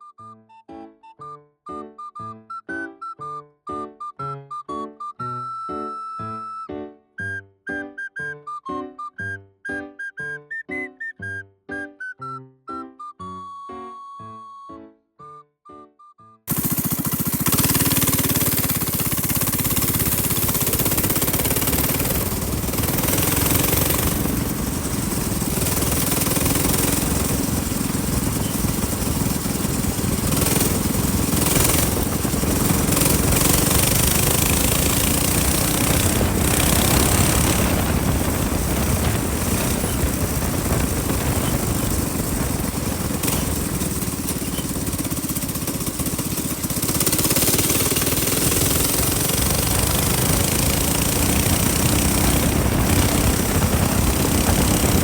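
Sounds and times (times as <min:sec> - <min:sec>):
minibike engine running: 0:16.5 - 0:55.0.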